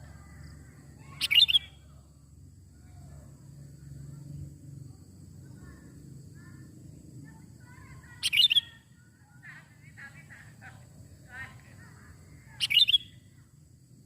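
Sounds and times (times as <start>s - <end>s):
distant bird calls: 0.0s - 3.4s, 5.4s - 13.5s
bird chirping calls: 0.9s - 2.0s, 7.7s - 13.4s.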